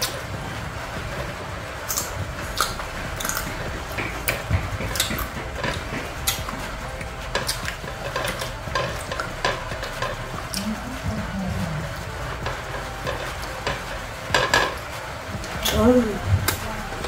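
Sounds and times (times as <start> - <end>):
crisp crunching chewing: 1.8 - 6.5.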